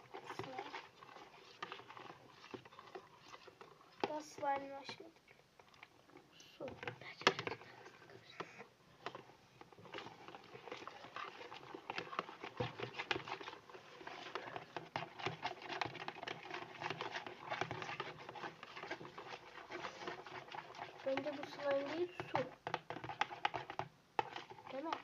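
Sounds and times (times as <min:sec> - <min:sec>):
spoon clicking and scraping container: 0:09.8 - 0:25.0.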